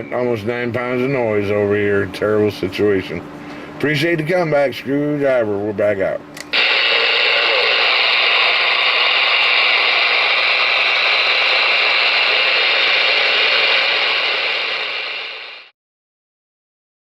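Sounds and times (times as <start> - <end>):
radio static hiss: 6.5 - 15.7.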